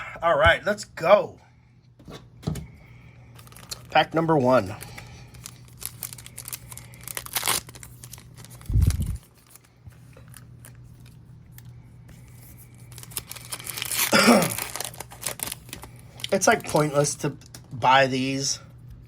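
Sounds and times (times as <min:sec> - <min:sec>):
faint low hum: 0:00.0 - 0:19.0
wrapper crinkling and tearing: 0:03.4 - 0:11.7, 0:12.8 - 0:16.9.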